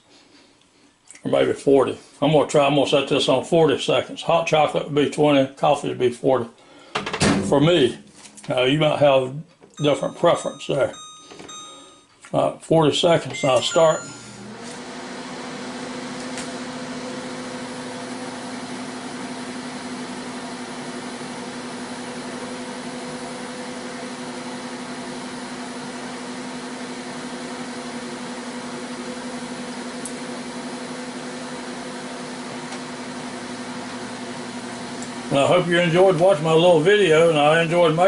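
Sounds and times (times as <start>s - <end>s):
microwave oven humming: 9.8s - 12.1s, 13.3s - 38.0s.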